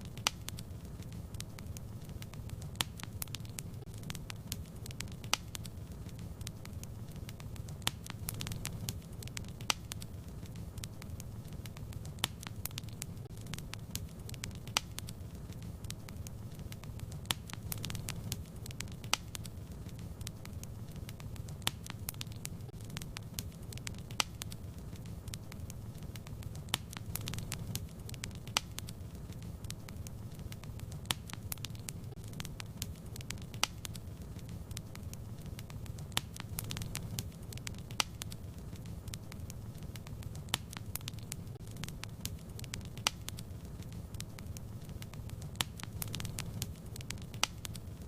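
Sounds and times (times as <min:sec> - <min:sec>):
fire crackling and popping: 0:00.0 - 0:48.0.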